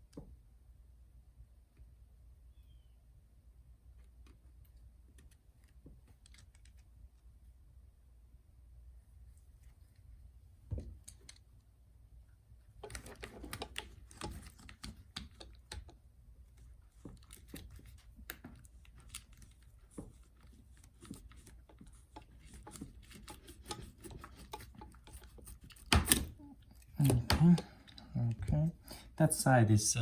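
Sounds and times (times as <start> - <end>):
hand tools clicking and tapping: 12.8 - 16.0, 21.0 - 26.4, 27.0 - 28.0.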